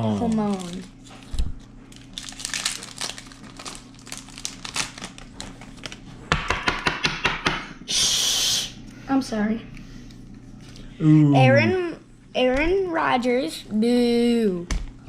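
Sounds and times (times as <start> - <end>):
foil wrapper crinkling: 0.2 - 6.1.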